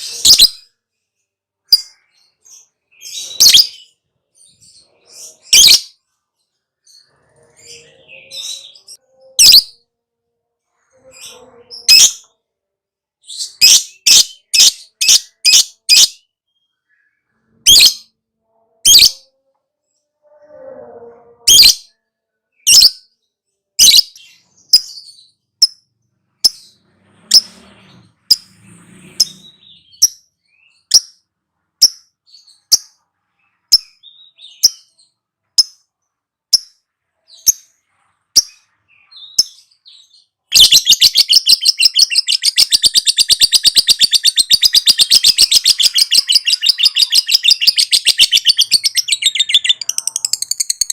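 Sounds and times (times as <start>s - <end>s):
lovebird shrill chirps: 0.0s - 0.6s, 2.5s - 3.8s, 9.3s - 9.8s, 40.5s - 50.9s.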